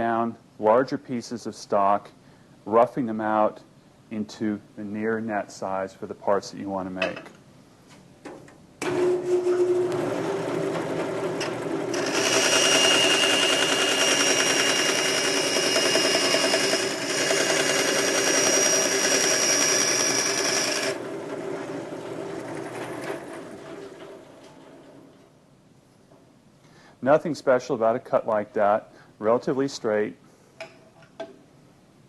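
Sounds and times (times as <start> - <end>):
bandsaw humming: 11.4 - 21.0
bandsaw cutting with high whine: 11.9 - 21.0.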